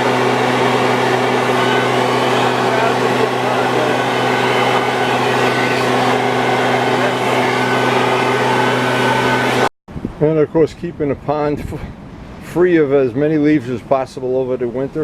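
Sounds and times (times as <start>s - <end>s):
pond vacuum humming and rushing: 0.0s - 9.7s.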